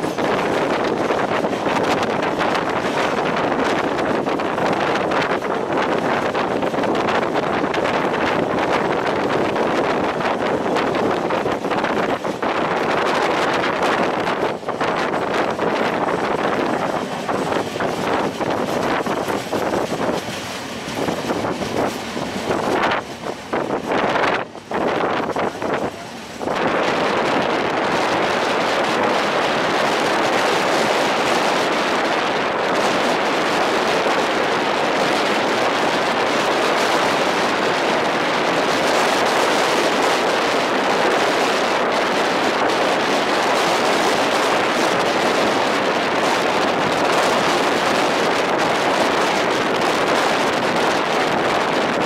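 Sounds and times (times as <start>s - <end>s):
train running on rails: 0.0s - 52.0s
wind buffeting microphone: 0.0s - 52.0s.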